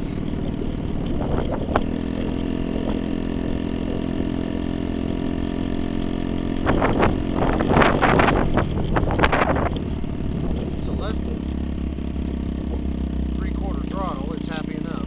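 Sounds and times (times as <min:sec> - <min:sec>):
scooter engine running: 0:00.0 - 0:15.0
rough gusty noise: 0:06.5 - 0:14.1.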